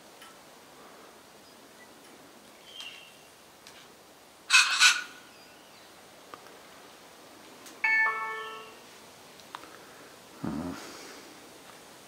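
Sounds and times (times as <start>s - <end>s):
bird screeching harshly: 4.5s - 5.2s
two-note ding-dong chime: 7.8s - 8.8s.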